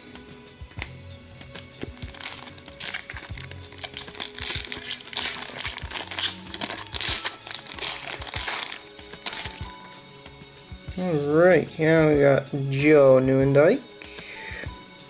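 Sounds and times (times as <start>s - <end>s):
background music: 0.0s - 15.0s
card pack wrapper crinkling: 0.8s - 9.9s.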